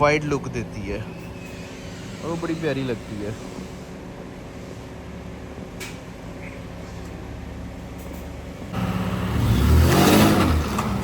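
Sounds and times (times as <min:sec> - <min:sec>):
car engine idling and revving: 0:07.5 - 0:11.0.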